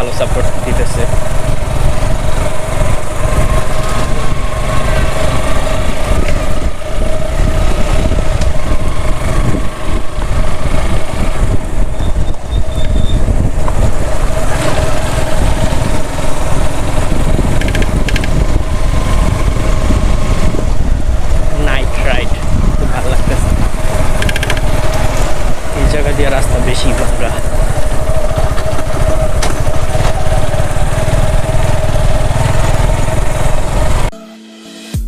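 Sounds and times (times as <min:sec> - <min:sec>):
motorcycle engine running: 0:00.0 - 0:34.1
wind rumble on microphone: 0:00.0 - 0:34.1.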